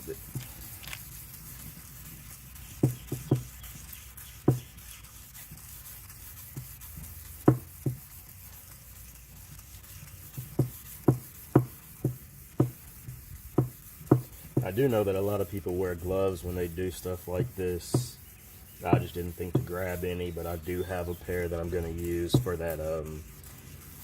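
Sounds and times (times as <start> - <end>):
sandpaper sanding plastic: 0.0 - 24.0.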